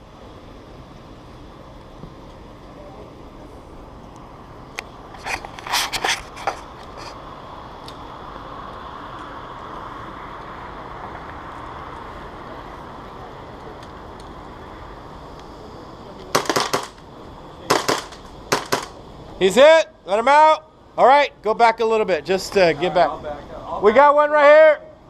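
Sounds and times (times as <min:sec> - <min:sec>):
steady background hum: 0:00.0 - 0:25.0
airsoft guns firing: 0:16.3 - 0:17.0, 0:17.7 - 0:19.0.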